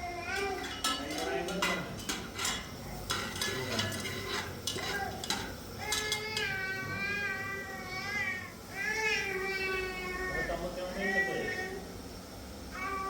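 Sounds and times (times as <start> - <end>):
dishes or cutlery clinking: 0.4 - 6.6.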